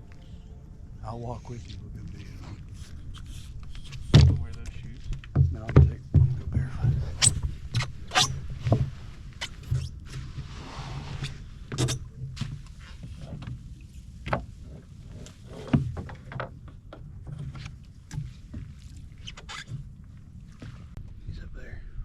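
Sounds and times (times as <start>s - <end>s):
low uneven rumble: 0.0s - 17.2s
wading through shallow water: 17.4s - 21.0s.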